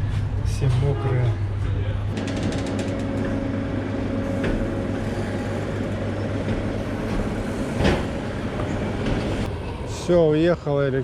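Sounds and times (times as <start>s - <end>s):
train motor hum: 2.2s - 9.9s.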